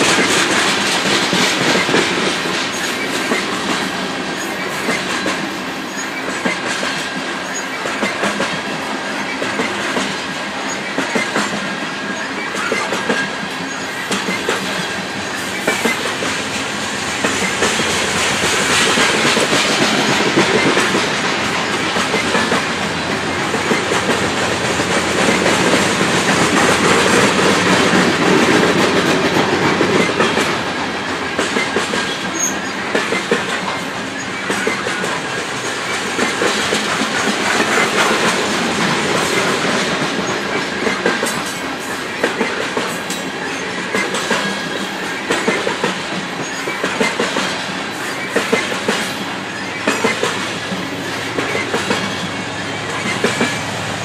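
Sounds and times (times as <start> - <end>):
train wheels clicking over rail joints: 0.0 - 54.0.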